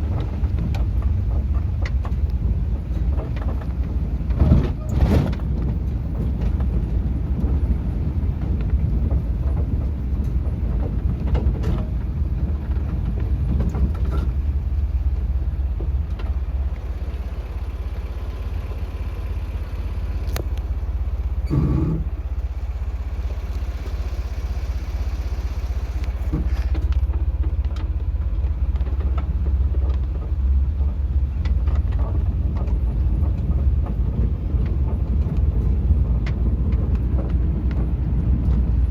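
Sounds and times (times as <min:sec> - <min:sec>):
small knocks and rattles: 0:00.0 - 0:17.5, 0:26.0 - 0:38.9
car engine and road noise: 0:00.0 - 0:38.9.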